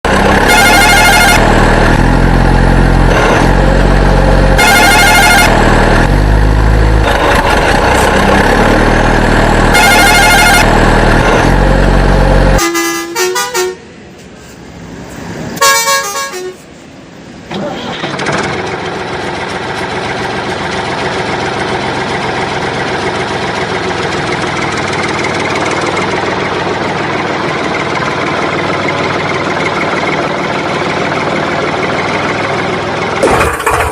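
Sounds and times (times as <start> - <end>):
engine running: 0.0 - 33.9
vehicle horn honking: 0.4 - 1.5, 4.6 - 5.6, 9.7 - 10.7, 12.5 - 13.9, 15.6 - 16.7.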